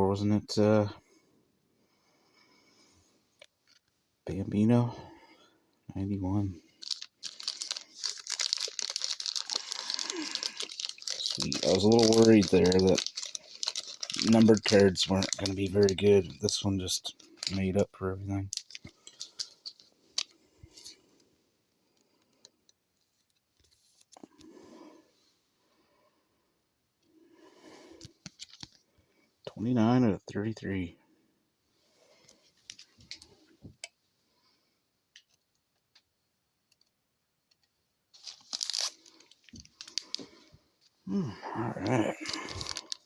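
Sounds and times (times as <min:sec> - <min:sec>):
cards rustling: 0:06.3 - 0:17.8, 0:18.4 - 0:21.0, 0:28.0 - 0:28.8, 0:38.2 - 0:40.4, 0:41.4 - 0:43.0.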